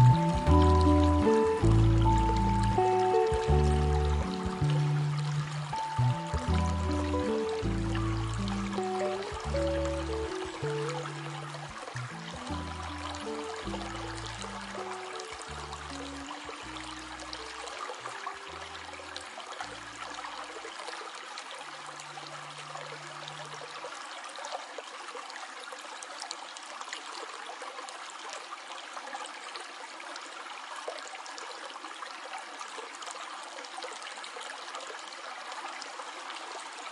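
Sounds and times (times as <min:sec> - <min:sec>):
low music notes: 0:00.0 - 0:18.9
stream water trickling: 0:00.0 - 0:36.9.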